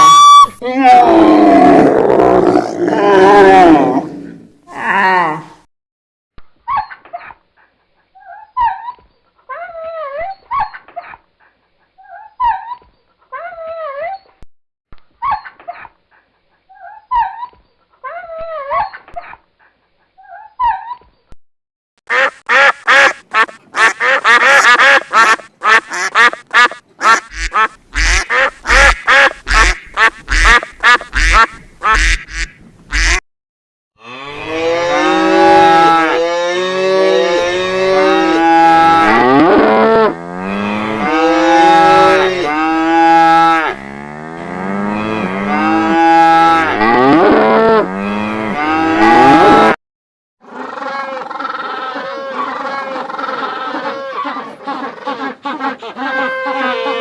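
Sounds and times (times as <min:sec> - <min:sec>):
animal calls: 0:50.4 - 0:57.0.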